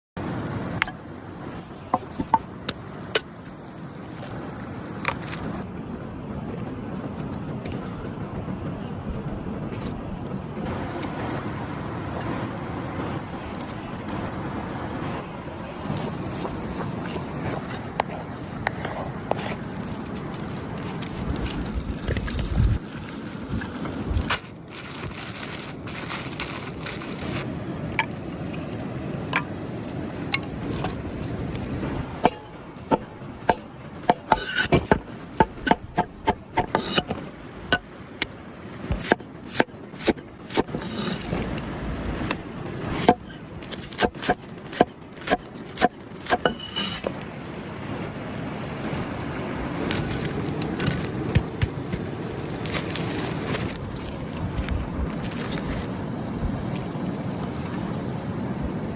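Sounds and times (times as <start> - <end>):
utensils scraping: 34.1 - 37.8, 39.0 - 41.5, 43.0 - 47.2.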